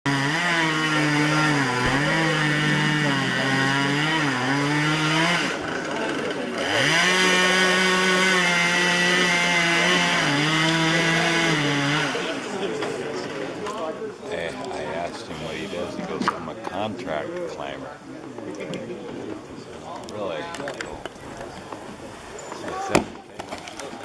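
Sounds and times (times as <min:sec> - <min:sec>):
chainsaw cutting wood: 0:00.1 - 0:12.9.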